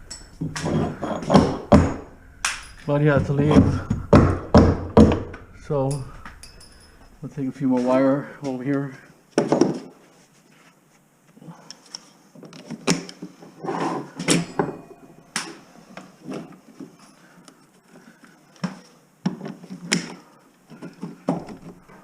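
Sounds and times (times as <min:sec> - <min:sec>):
sharp knocks: 0:00.4 - 0:05.4.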